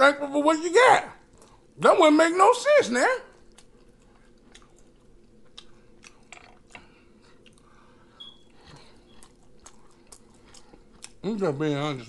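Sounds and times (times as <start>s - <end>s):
man chewing chicken: 3.4s - 11.2s.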